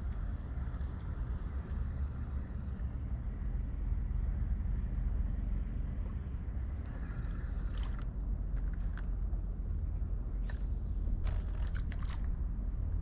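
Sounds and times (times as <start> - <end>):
steady low rumble: 0.0 - 13.0
gear clicking and rustling: 10.4 - 12.4.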